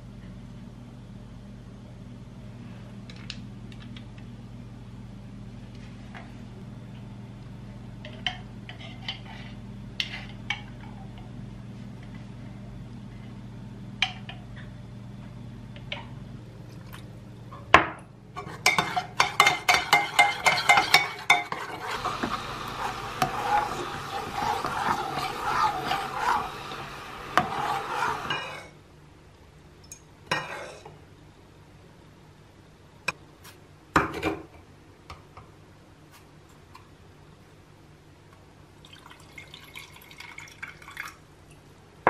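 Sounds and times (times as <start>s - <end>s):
low steady hum: 0.0s - 42.0s
stirring and scraping bowl: 8.7s - 10.7s, 18.4s - 28.8s, 30.4s - 30.9s
utensil beating against bowl: 18.7s - 28.5s.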